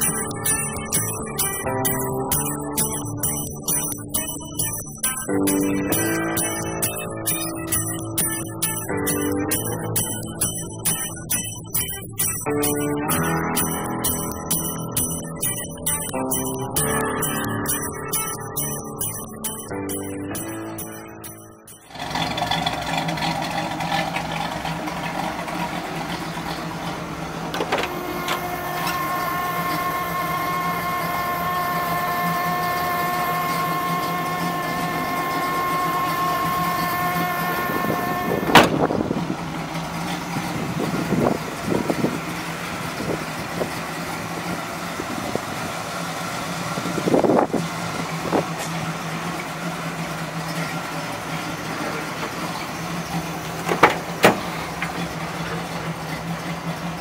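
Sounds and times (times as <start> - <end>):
car engine idling: 0.0 - 57.0
sharp clunk: 27.5 - 29.0, 38.5 - 38.9, 53.6 - 55.0.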